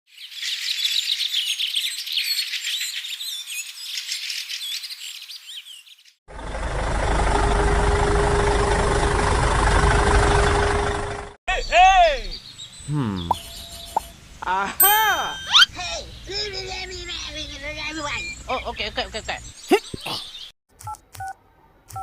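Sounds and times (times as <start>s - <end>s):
small birds chirping: 0.1s - 6.2s, 11.5s - 20.5s
loud rumble with whine: 6.3s - 11.4s.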